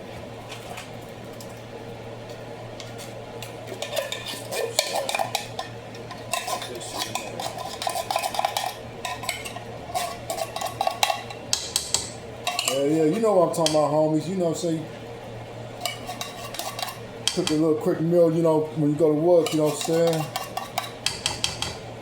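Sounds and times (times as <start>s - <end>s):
steady low hum: 0.0s - 22.0s
spoon stirring in a pot: 2.8s - 14.0s, 15.6s - 21.9s.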